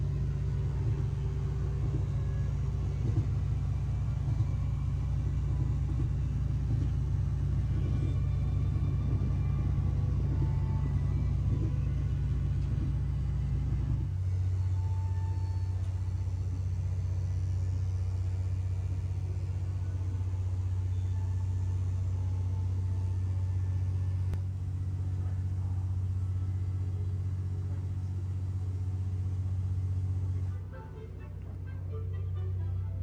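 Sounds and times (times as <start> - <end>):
train carriage rumble: 0.0 - 17.3.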